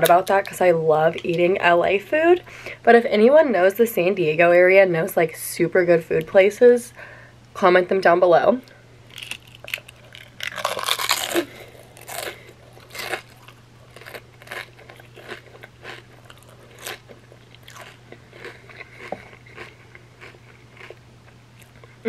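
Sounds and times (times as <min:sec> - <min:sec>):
chip crunching: 0:09.1 - 0:21.9
chewing mouth sounds: 0:09.2 - 0:21.0.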